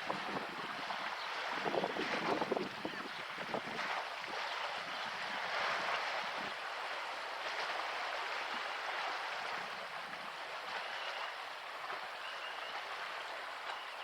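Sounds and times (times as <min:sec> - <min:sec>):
river water lapping and splashing: 0:00.0 - 0:14.0.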